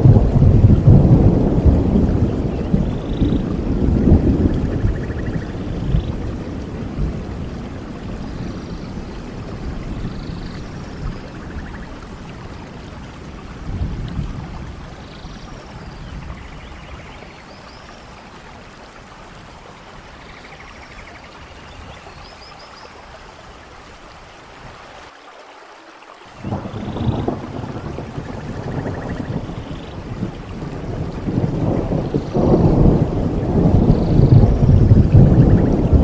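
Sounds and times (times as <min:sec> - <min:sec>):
thunder rumbling: 0:00.0 - 0:17.5, 0:26.4 - 0:36.0
steady rain: 0:00.0 - 0:36.0.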